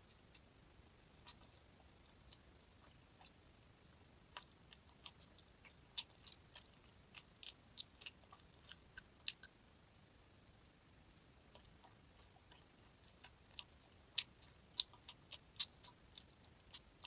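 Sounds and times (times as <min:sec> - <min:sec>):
person chewing food: 0:01.1 - 0:03.5, 0:04.3 - 0:09.6, 0:11.4 - 0:17.0.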